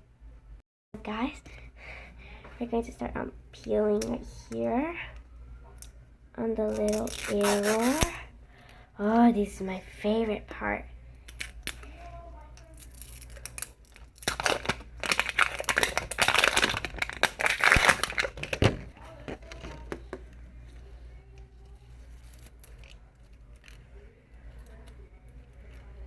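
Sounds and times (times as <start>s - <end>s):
plastic wrapping crackling and tearing: 6.6s - 8.2s, 12.6s - 20.0s
plastic rustling and clicks: 12.6s - 20.4s.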